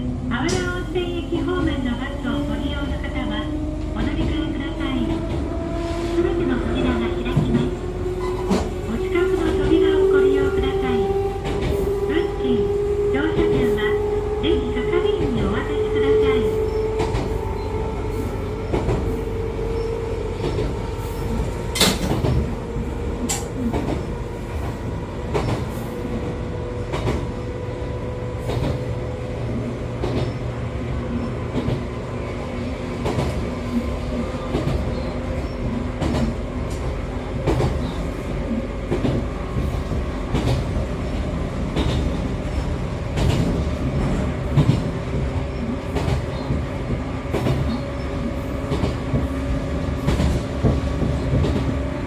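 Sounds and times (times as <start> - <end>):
train running rumble: 0.0 - 52.0.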